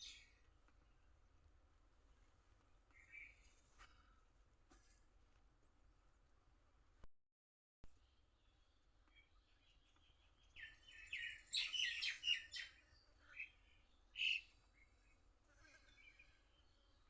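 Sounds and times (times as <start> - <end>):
bird chirping: 0.0 - 0.4, 8.0 - 15.2.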